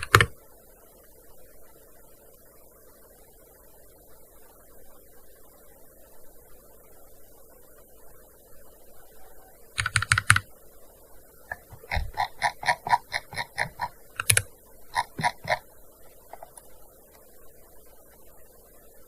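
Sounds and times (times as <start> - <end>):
keyboard key clicks: 0.0 - 0.3, 9.8 - 10.4, 11.5 - 15.6.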